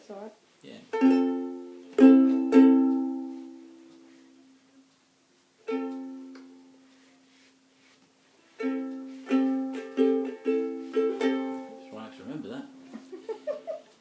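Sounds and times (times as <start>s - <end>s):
acoustic guitar strumming: 1.0s - 4.2s, 8.6s - 13.2s.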